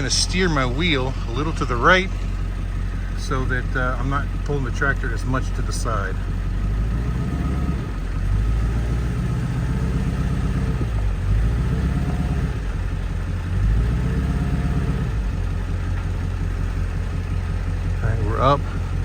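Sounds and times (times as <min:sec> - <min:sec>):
vehicle engine under load: 0:00.0 - 0:19.0.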